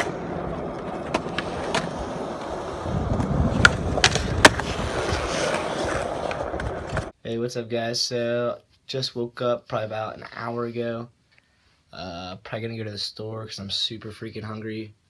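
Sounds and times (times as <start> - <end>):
skateboard clacks: 0.0 - 7.1
skateboard wheels rolling on concrete: 0.0 - 7.2.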